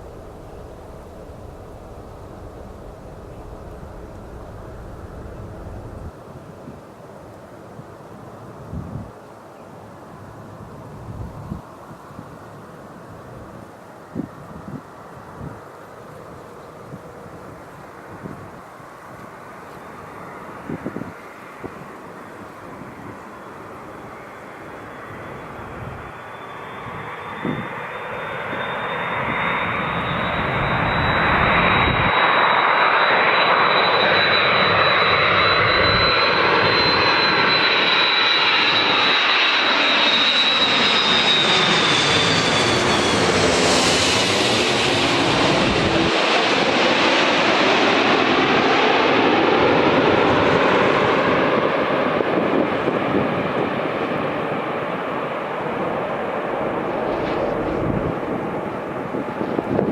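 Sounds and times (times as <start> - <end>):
jet engines roaring: 0.0 - 6.1, 18.8 - 59.9
high fan whine: 54.3 - 59.9.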